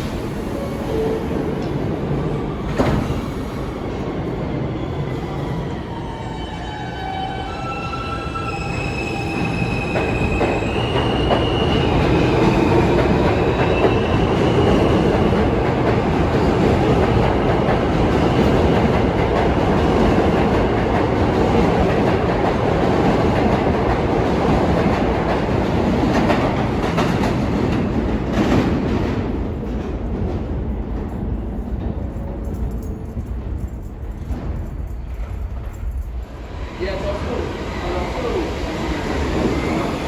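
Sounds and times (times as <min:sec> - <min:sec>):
subway train rumbling on track: 0:00.0 - 0:40.0.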